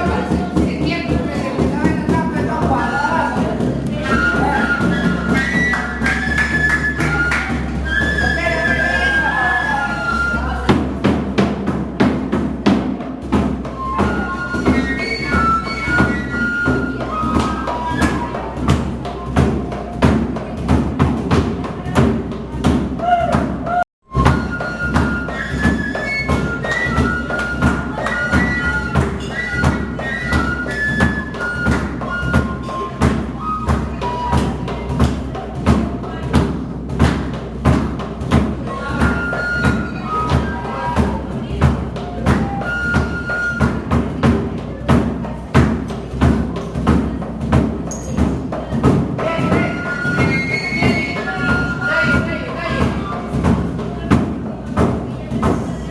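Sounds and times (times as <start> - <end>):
steady drum beat: 0.0 - 55.9
flute melody: 4.0 - 11.2, 13.6 - 20.0, 23.0 - 35.4, 38.6 - 44.4, 49.2 - 53.3.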